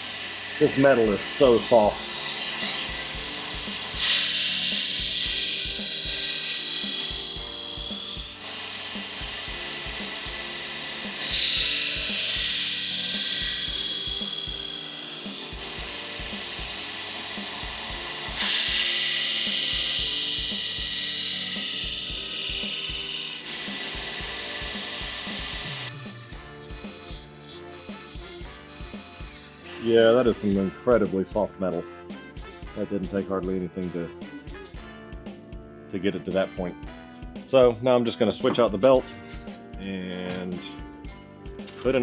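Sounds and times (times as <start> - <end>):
belt grinder running: 0.0 - 29.8
belt grinder grinding steel: 0.0 - 30.3.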